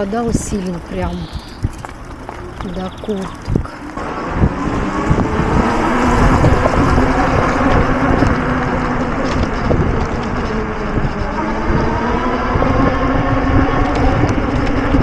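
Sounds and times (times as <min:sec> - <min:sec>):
electric motor hum: 0:00.0 - 0:11.4
tyres rumbling: 0:00.0 - 0:15.0
wind on microphone: 0:00.0 - 0:15.0.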